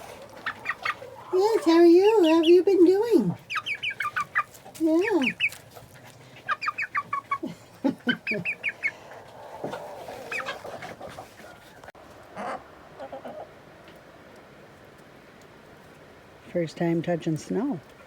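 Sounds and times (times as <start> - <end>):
hens clucking: 0.0 - 14.4.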